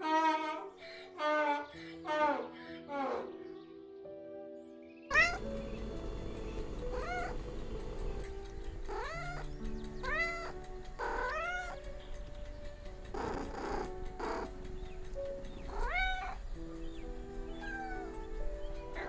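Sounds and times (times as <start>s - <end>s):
calm background music: 0.0s - 19.0s
cat meowing: 5.1s - 5.6s, 6.6s - 8.0s, 8.9s - 11.9s, 13.2s - 14.6s, 15.6s - 16.4s, 17.5s - 19.0s.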